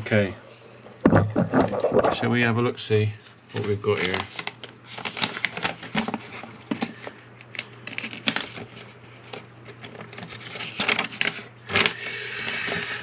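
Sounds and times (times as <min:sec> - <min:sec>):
steady low hum: 0:00.0 - 0:04.8
paper packaging rustling: 0:03.5 - 0:12.8.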